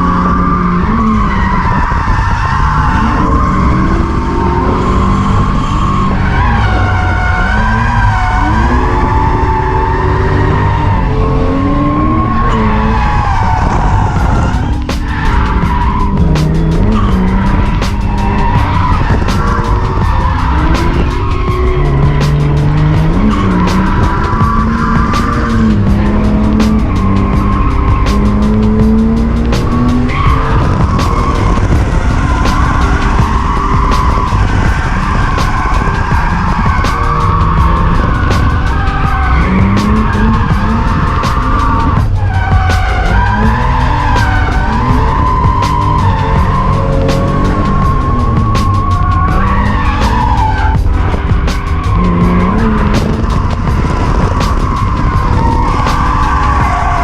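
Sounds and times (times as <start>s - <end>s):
car engine revving: 0.0s - 57.0s
music playing: 0.0s - 57.0s
tyres squealing: 0.0s - 57.0s.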